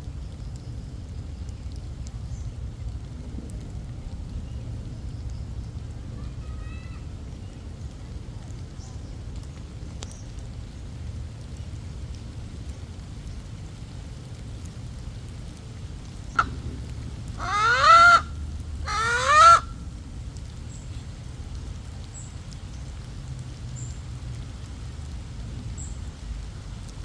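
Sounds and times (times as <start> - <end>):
low rumble: 13.8 - 27.0
bird squawking: 17.4 - 19.7.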